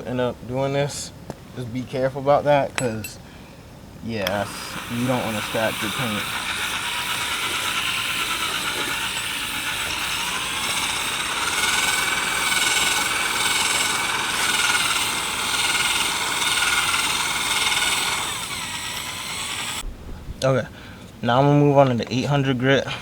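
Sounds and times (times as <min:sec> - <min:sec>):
power drill sanding plastic: 0:04.3 - 0:19.8.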